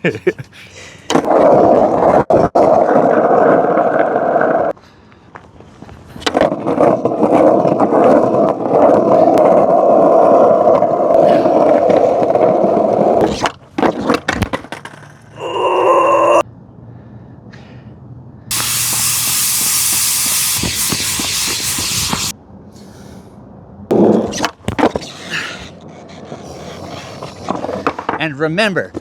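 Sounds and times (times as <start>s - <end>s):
skateboard wheels rolling on pavement: 1.0s - 15.5s, 18.5s - 22.7s, 23.4s - 29.0s
skateboard clacks: 1.1s - 3.2s, 5.4s - 15.3s, 23.9s - 29.0s.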